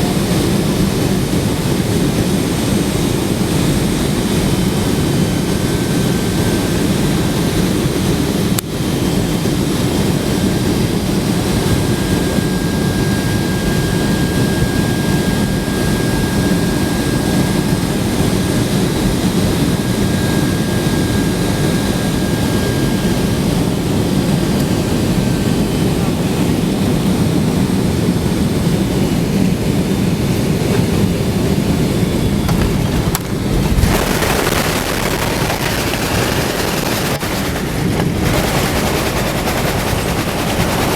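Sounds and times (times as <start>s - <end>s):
jet engine and airflow rumble: 0.0s - 40.9s.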